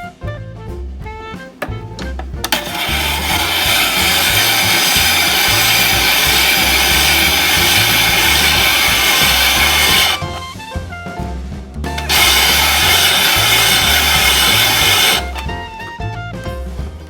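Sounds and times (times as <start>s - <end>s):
jazz background music: 0.0s - 17.0s
ice shaver grinding hiss: 1.6s - 10.5s, 11.9s - 15.5s.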